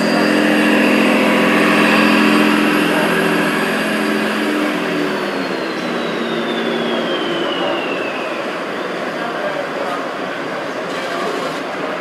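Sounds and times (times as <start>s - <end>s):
model tractor engine running: 0.0s - 8.8s
thin high whistle: 0.0s - 9.5s.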